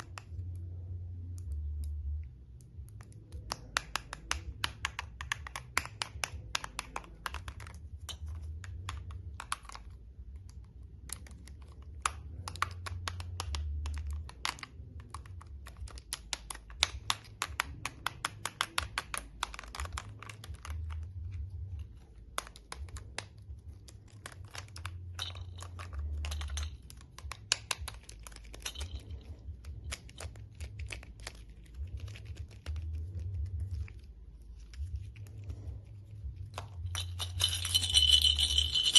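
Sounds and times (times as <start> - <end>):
plastic toys clicking: 2.6 - 32.8.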